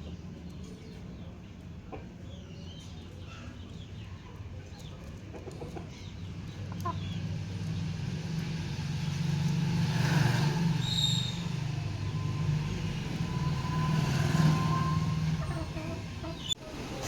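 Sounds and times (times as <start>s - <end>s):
vehicle engine droning: 5.5s - 17.0s.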